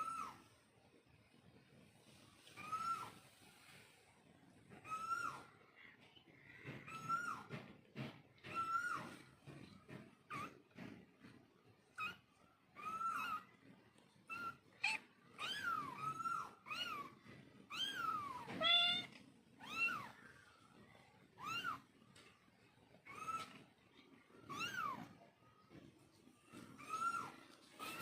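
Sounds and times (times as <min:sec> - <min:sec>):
kittens meowing: 0:04.7 - 0:05.7, 0:06.4 - 0:07.6, 0:11.8 - 0:20.5, 0:21.2 - 0:22.0, 0:22.8 - 0:25.3, 0:26.5 - 0:28.0.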